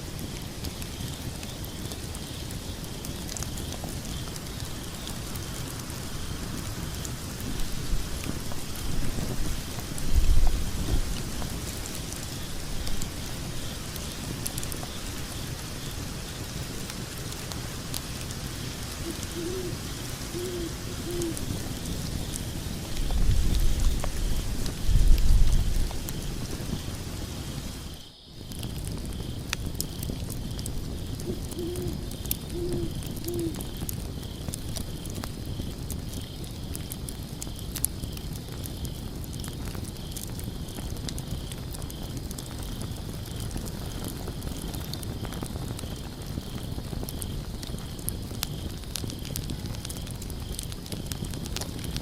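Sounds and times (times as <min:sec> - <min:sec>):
fire crackling and popping: 0:00.0 - 0:52.0
low rumble of flames: 0:00.0 - 0:52.0
owl hooting: 0:19.0 - 0:21.5, 0:31.2 - 0:33.6.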